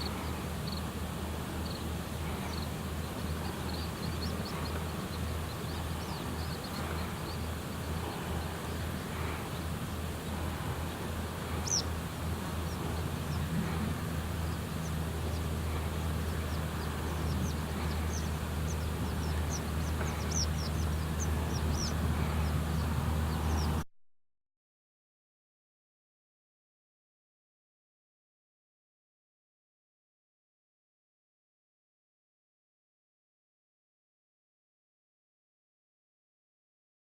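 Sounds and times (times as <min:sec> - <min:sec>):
high-pitched bird calls: 0:00.0 - 0:23.8
steady low rumble: 0:00.0 - 0:23.8.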